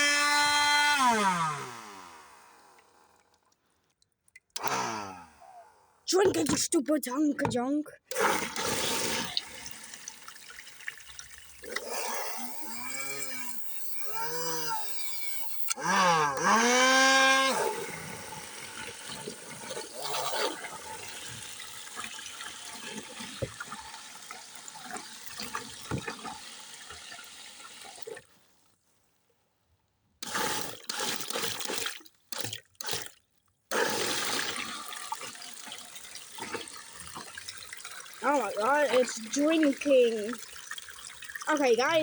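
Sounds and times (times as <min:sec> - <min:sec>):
vacuum cleaner motor whine: 0:00.0 - 0:03.0, 0:04.6 - 0:05.7, 0:11.8 - 0:19.1
gurgling slurp of water: 0:08.1 - 0:26.5, 0:30.2 - 0:42.0.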